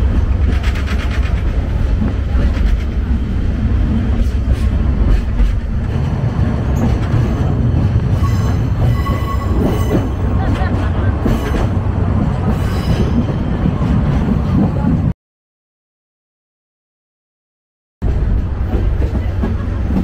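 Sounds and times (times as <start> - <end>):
train rumbling on track: 0.0 - 15.2, 18.0 - 20.0
high-pitched wheel squeal: 8.2 - 10.2.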